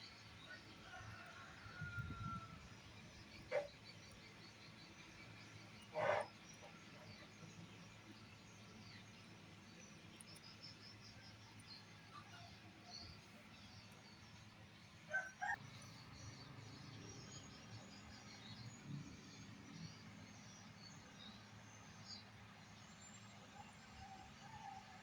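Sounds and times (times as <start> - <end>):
birds and insects chirping: 0.0 - 24.6
animal calls: 5.9 - 6.3.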